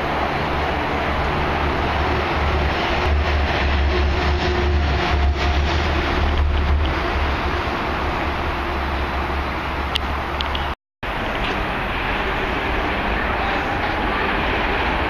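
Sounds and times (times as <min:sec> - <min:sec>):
train running past: 0:00.0 - 0:15.0
wind buffeting microphone: 0:00.0 - 0:15.0
clicking: 0:09.9 - 0:10.7.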